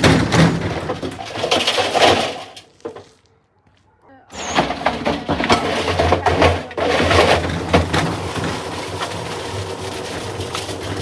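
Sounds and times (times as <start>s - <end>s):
bricks knocking in washing machine: 4.5s - 11.0s
washing machine motor humming: 6.8s - 11.0s.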